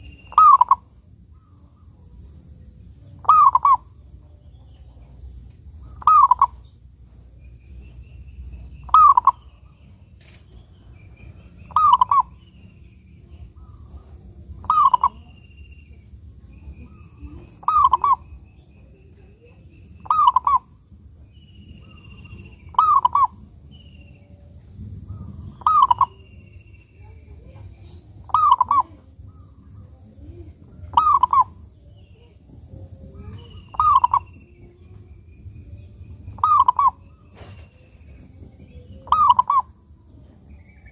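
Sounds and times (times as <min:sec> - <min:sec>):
dove cooing: 0:00.0 - 0:02.1, 0:03.2 - 0:05.1, 0:05.8 - 0:06.7, 0:08.6 - 0:09.8, 0:11.6 - 0:12.5, 0:13.3 - 0:15.4, 0:16.8 - 0:20.8, 0:21.8 - 0:23.8, 0:25.1 - 0:26.3, 0:27.4 - 0:35.0, 0:35.7 - 0:40.9
faint low hum: 0:00.0 - 0:40.9
small birds chirping: 0:00.0 - 0:40.9.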